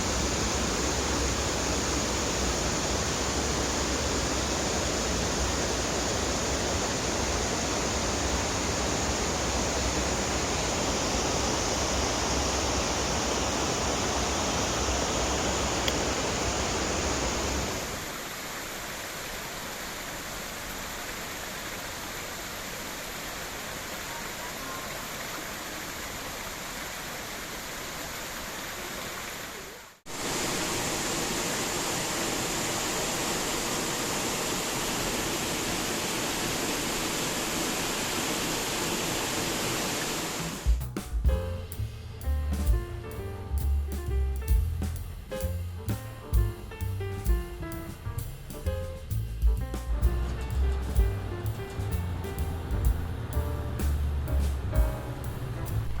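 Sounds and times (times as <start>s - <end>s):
river water rushing over rocks: 0.0s - 40.6s.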